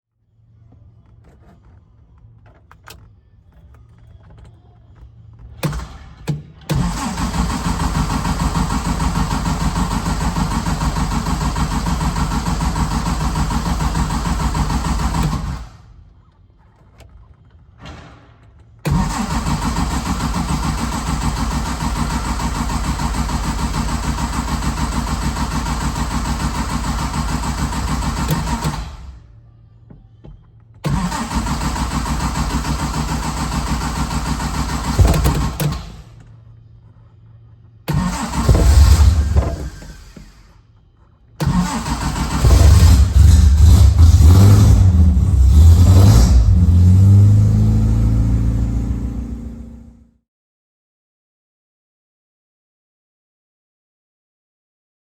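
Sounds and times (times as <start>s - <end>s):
car engine pulsing: 6.7s - 17.4s, 18.8s - 40.5s, 41.4s - 50.2s.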